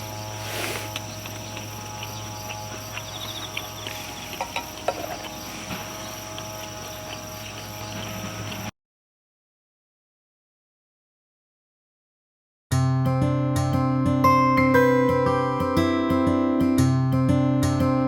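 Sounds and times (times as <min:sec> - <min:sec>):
insect buzzing trill: 0:00.0 - 0:08.7
insects chirping: 0:00.0 - 0:08.7.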